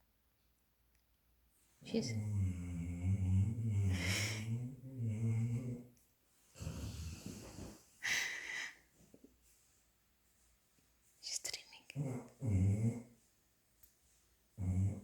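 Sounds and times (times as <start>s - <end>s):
dog snoring: 2.1s - 5.9s, 6.6s - 7.8s, 12.0s - 13.1s, 14.6s - 15.0s.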